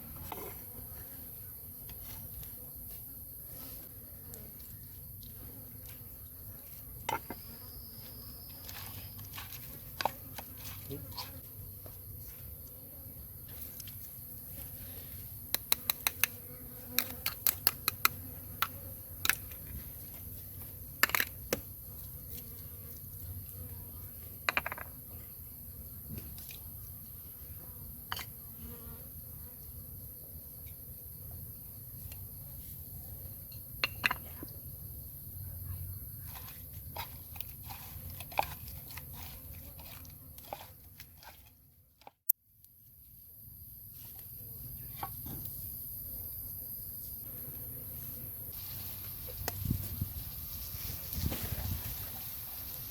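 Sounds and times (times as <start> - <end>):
insects droning: 4.5 - 40.8
person chewing crunchy food: 36.9 - 41.6.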